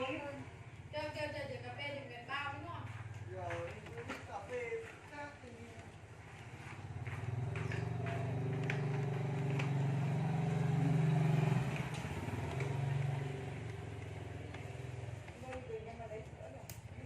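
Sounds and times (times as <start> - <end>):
motorbike engine running: 6.1 - 17.0.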